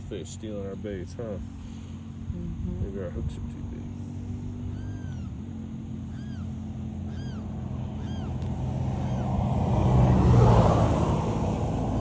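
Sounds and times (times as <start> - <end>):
steady motor drone: 0.0 - 12.0
bird whistling calls: 4.7 - 5.4, 6.0 - 9.3.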